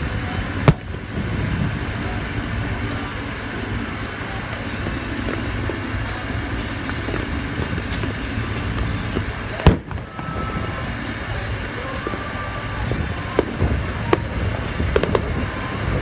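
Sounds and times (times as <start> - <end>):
firework bang: 0.0 - 16.0
steady background din: 0.0 - 16.0
faint firework pops: 6.8 - 11.3.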